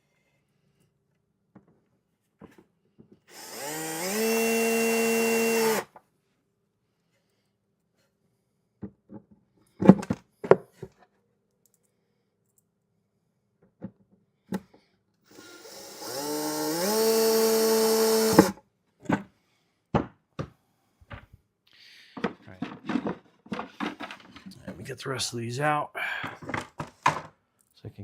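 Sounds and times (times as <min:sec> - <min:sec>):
cordless screw gun whirring: 0:03.3 - 0:05.9, 0:15.3 - 0:18.6
knocks of tools being handled: 0:22.2 - 0:24.8.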